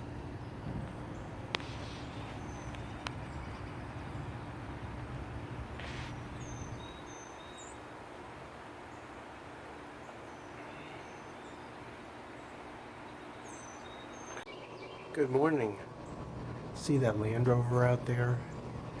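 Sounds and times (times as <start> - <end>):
low steady rumble: 0.0 - 19.0
high bird chirps: 6.2 - 7.8, 10.0 - 15.2.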